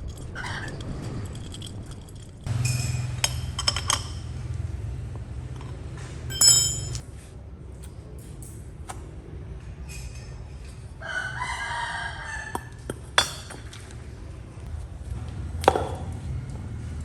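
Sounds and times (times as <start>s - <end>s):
steady low hum: 0.0s - 10.5s
rooster crowing: 11.0s - 12.8s.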